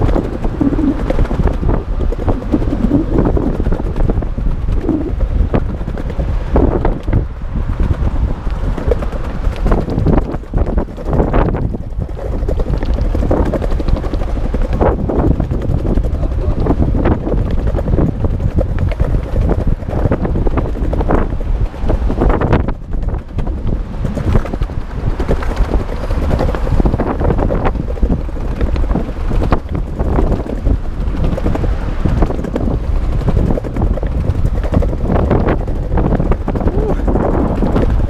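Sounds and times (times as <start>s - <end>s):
longboard wheels rumbling on pavement: 0.0s - 38.0s
wind buffeting microphone: 0.0s - 38.0s.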